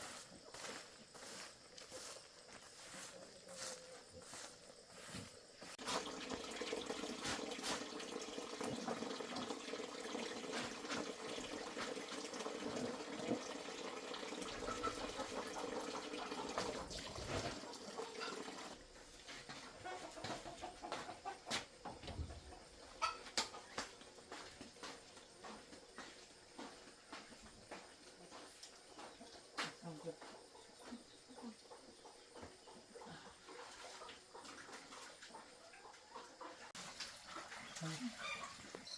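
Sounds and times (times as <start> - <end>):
water pouring: 5.8 - 18.8, 36.8 - 38.9.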